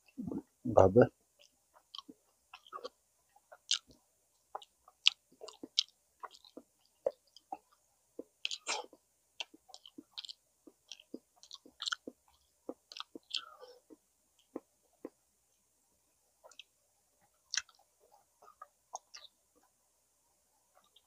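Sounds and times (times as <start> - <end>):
person chewing food: 1.4 - 15.2, 16.4 - 19.8, 20.6 - 21.0
lip smacks: 3.5 - 15.2, 17.5 - 17.8, 18.4 - 19.3.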